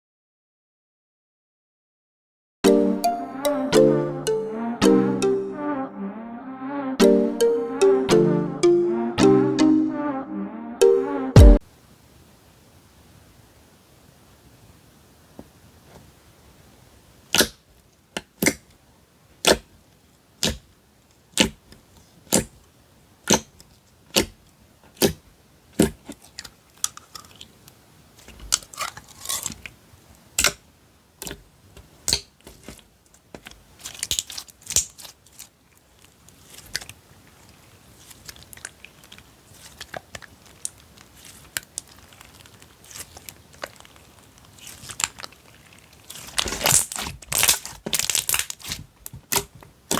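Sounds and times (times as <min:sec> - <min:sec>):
slime crackling and squishing: 0:32.0 - 0:49.9
slime popping: 0:38.0 - 0:49.9.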